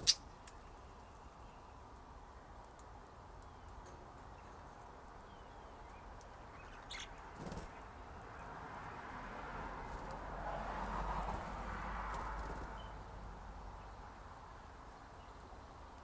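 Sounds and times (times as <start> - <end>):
budgerigars chirping: 0.0 - 0.3, 6.5 - 7.6.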